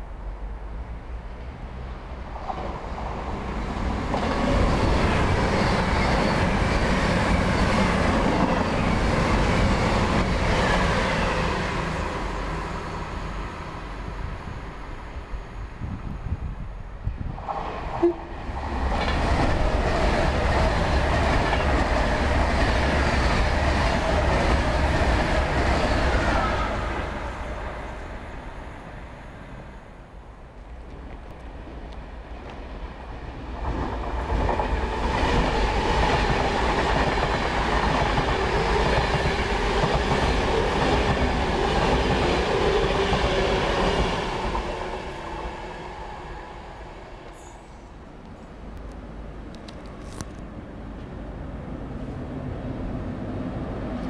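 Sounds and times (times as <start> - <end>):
electric train passing: 0.0 - 49.6
wheels clickety-clack on rail: 2.3 - 11.2, 17.4 - 26.6, 33.4 - 45.4.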